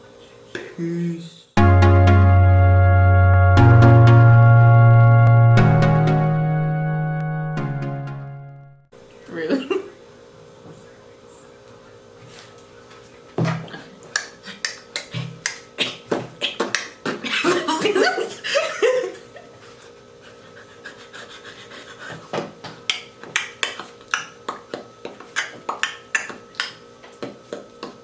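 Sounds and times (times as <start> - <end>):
sharp taps or claps: 22.9 - 28.0.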